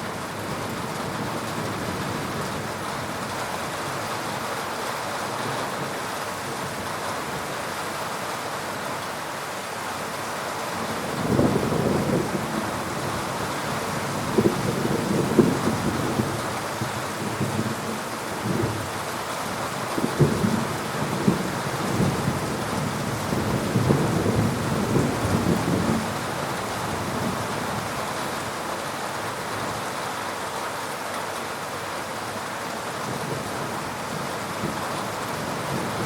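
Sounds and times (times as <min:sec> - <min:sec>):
heavy rain falling: 0:00.0 - 0:36.0
thunder rumbling: 0:20.0 - 0:27.9.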